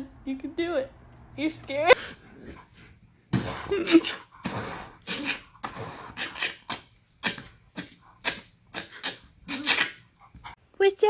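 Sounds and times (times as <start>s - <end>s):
dog whining: 5.0s - 10.4s.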